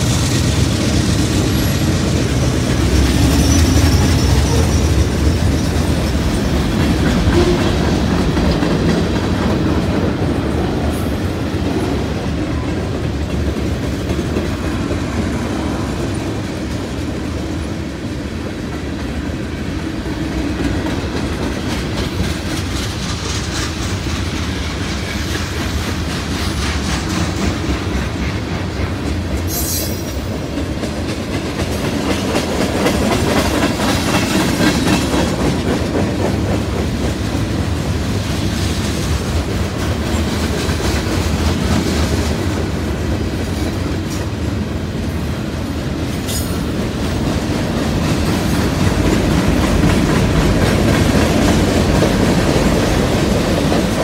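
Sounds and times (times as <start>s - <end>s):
high-pitched screech: 2.9s - 5.6s.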